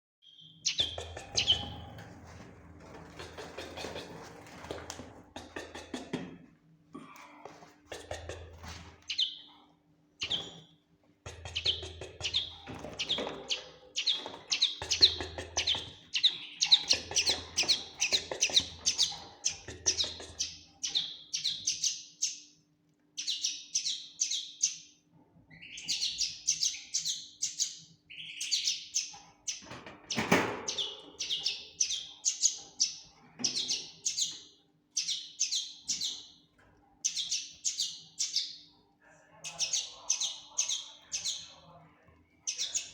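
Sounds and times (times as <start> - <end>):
bird twittering song: 0.2 - 2.0, 9.1 - 9.6, 10.2 - 22.6, 23.2 - 38.8, 39.4 - 41.7, 42.4 - 42.9.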